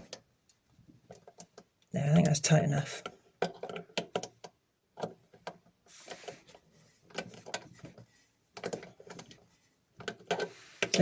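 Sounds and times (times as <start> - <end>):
faint tool clicks and knocks: 3.0 - 11.0.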